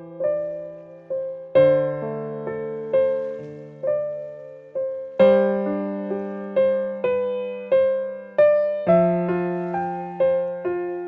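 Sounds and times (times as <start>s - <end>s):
gentle solo piano music: 0.0s - 11.0s.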